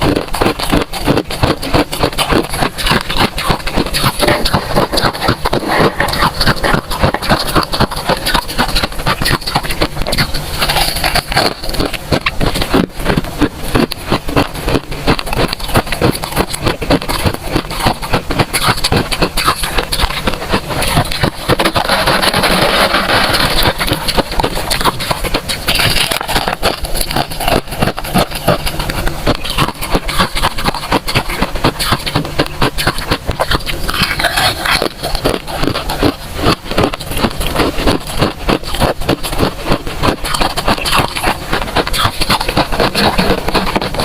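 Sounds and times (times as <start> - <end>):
freezer frost crunching: 0.0 - 44.0.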